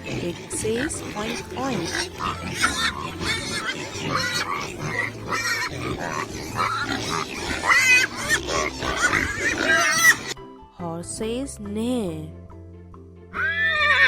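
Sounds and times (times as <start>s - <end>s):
pig grunting and oinking: 0.0s - 10.4s, 13.4s - 14.0s.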